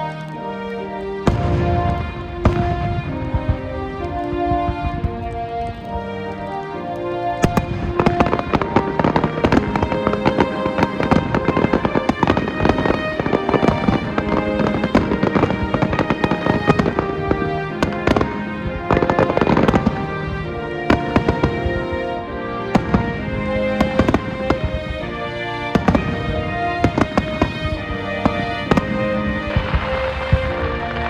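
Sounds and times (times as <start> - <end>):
fireworks booming and crackling: 0.0 - 31.0
music with sustained notes: 0.0 - 31.0.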